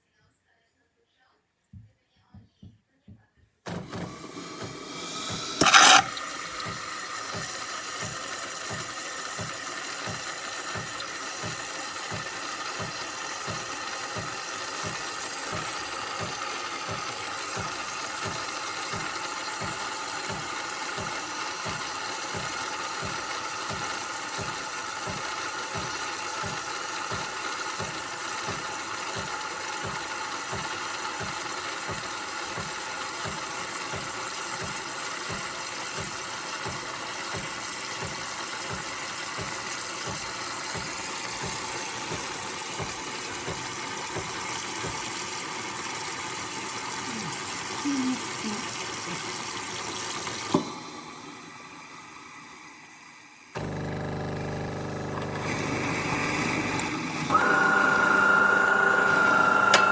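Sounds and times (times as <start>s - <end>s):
espresso machine pump humming: 3.7s - 52.6s, 53.6s - 59.9s
loud hiss burst: 4.1s - 7.3s.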